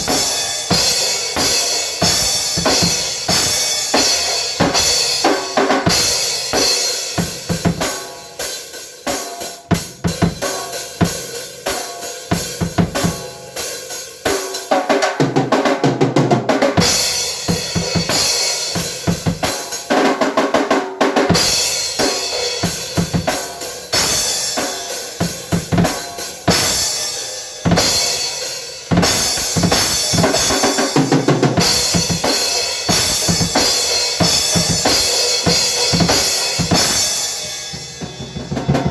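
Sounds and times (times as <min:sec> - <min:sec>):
bass drum and snare strikes: 0:00.0 - 0:08.1, 0:28.9 - 0:37.2.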